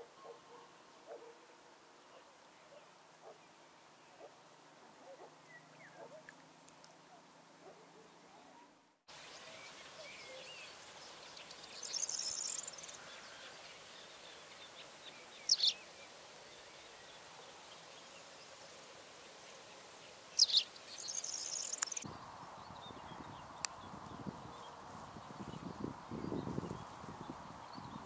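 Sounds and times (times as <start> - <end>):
faint steady hiss: 0.0 - 28.0
high buzzy bird trills: 11.5 - 16.0, 20.4 - 22.1.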